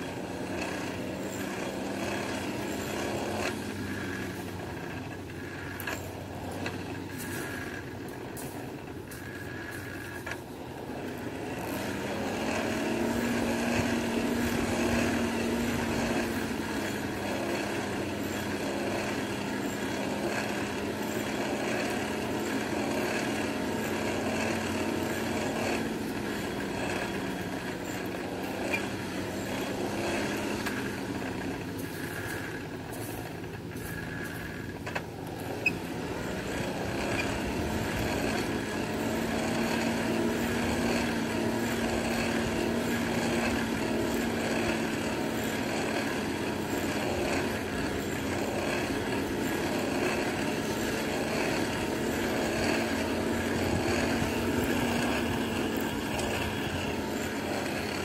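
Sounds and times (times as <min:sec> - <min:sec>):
motor-like drone: 0:00.0 - 0:58.0.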